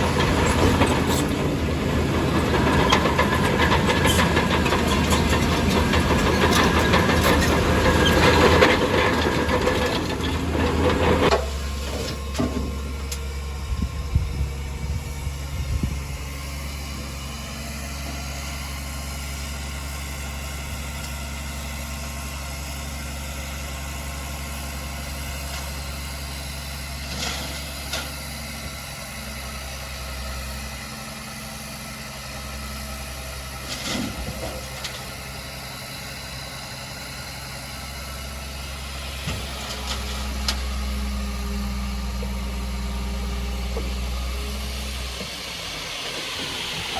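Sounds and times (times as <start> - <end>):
metal knocks and clanks: 0.0 - 13.2
heavy diesel engine: 0.0 - 46.9.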